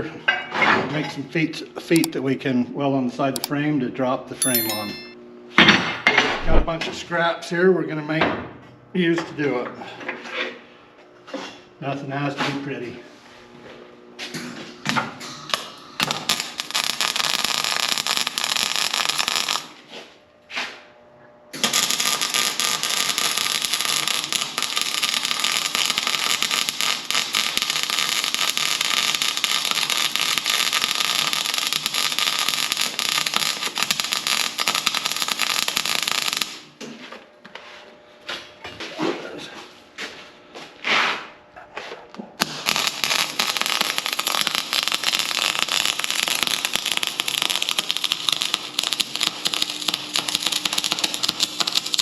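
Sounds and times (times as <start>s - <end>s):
arc welding crackling: 1.8s - 2.2s, 15.5s - 20.0s, 21.5s - 36.8s, 42.4s - 52.0s.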